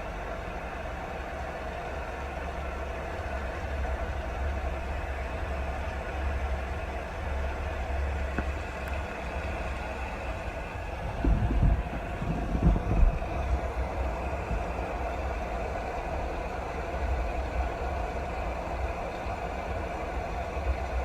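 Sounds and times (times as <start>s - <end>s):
steady rain: 0.0s - 21.0s
low rumble: 7.6s - 15.5s
low thumps: 11.1s - 13.5s.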